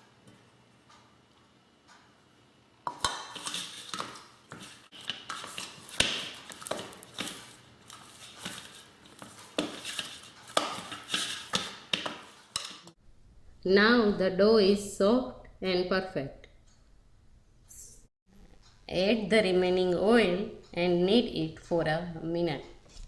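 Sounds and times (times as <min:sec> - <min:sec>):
dough kneaded in a bowl: 0:02.9 - 0:13.0.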